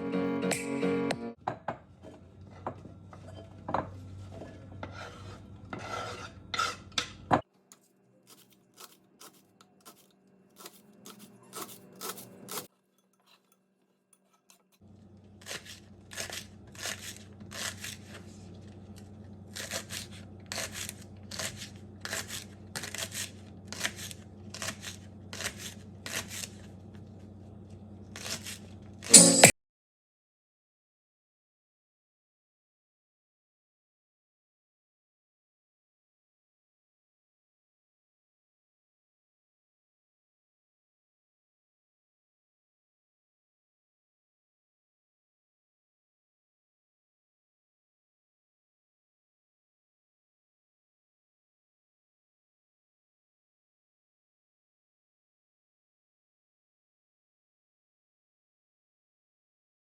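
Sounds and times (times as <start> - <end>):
rubbing and scraping strokes: 4.2 - 6.9, 8.2 - 12.7.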